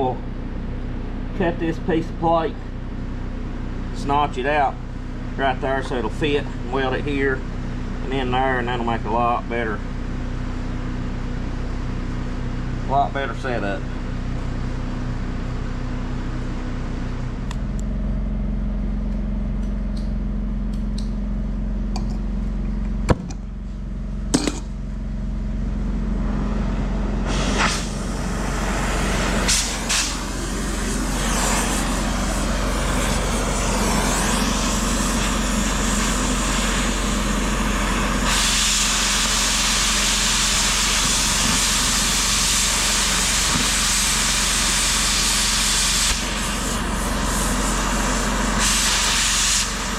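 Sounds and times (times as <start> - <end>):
low engine hum: 0.0 - 39.6
cutting torch hissing: 27.2 - 49.9.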